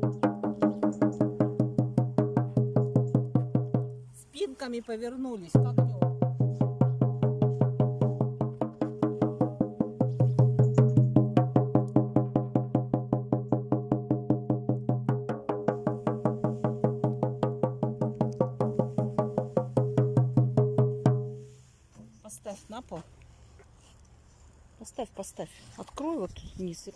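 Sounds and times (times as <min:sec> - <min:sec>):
drum beaten in fast rhythm: 0:00.0 - 0:04.0, 0:05.5 - 0:21.4.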